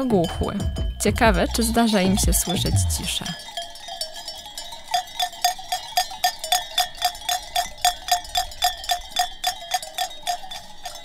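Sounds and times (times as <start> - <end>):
metal sheep bell clanking: 0.0 - 11.0.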